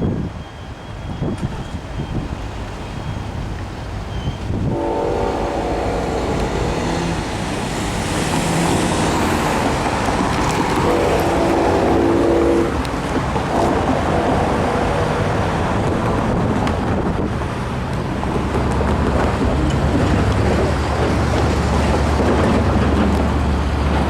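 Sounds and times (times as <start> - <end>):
passing train rumble: 0.0 - 24.0
train horn blasts: 4.6 - 16.0.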